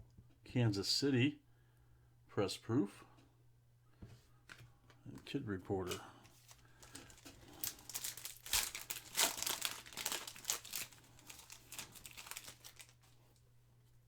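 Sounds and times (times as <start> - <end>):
foil wrapper crinkling: 5.8 - 13.4.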